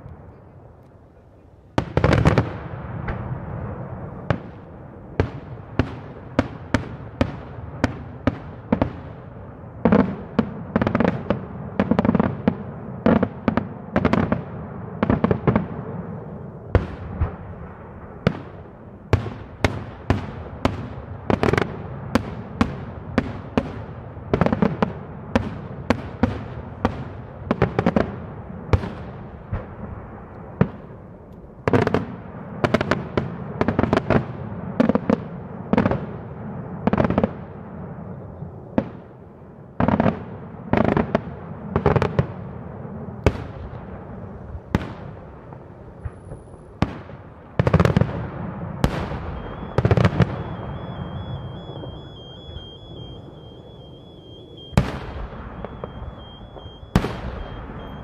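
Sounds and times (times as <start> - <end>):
fireworks bursting with echo: 0.0 - 58.0.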